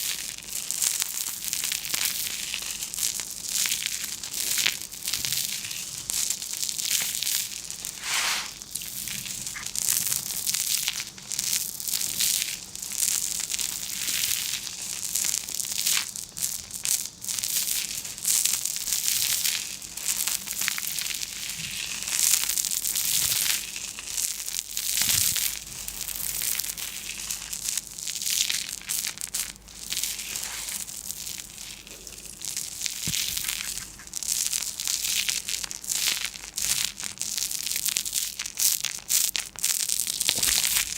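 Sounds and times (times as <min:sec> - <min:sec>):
irregular crinkling and crushing: 0:20.3 - 0:27.6, 0:29.0 - 0:35.8, 0:40.0 - 0:40.9.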